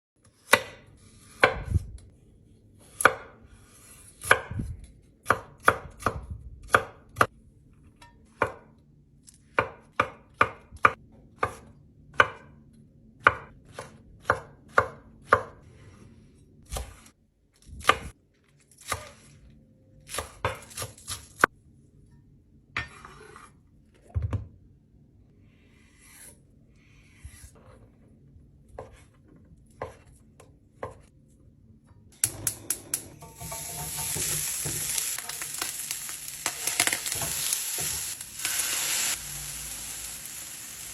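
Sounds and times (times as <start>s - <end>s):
knife chopping on cutting board: 0.3s - 1.8s.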